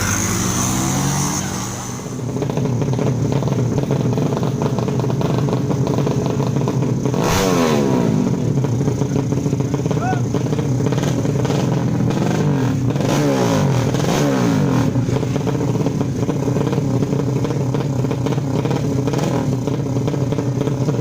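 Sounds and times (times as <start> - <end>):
racing motorcycle engines: 0.0 - 21.0.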